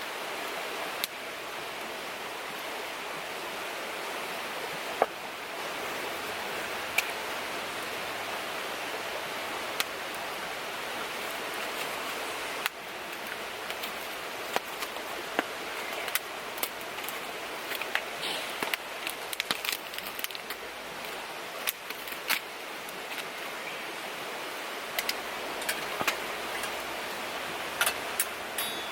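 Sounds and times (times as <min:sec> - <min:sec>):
river rushing: 0:00.0 - 0:28.9.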